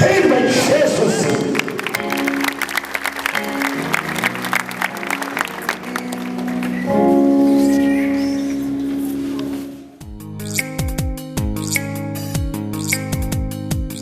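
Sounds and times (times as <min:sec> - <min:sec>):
keyboard chords: 0:00.0 - 0:14.0
hand clapping: 0:01.2 - 0:07.0.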